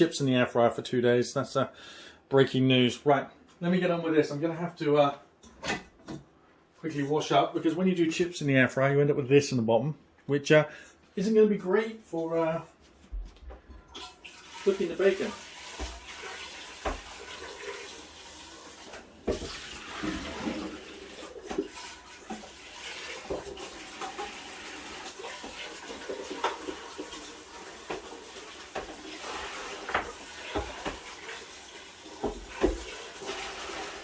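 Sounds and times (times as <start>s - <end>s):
tap running into sink: 15.5s - 17.9s, 18.8s - 34.0s.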